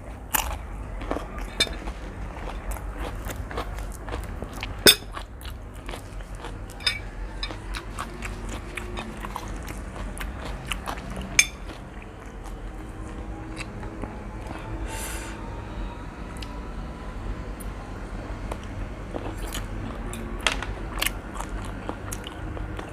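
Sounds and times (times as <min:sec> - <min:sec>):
person chewing noodles: 0:00.2 - 0:15.4, 0:18.4 - 0:22.9.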